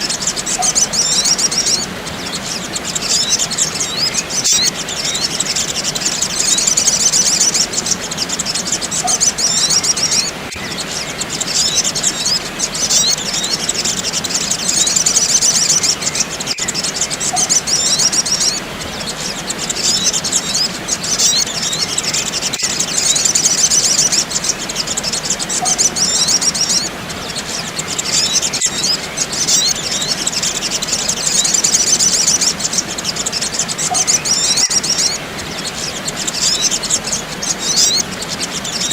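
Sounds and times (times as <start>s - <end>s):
sunbirds chirping: 0.0s - 38.9s.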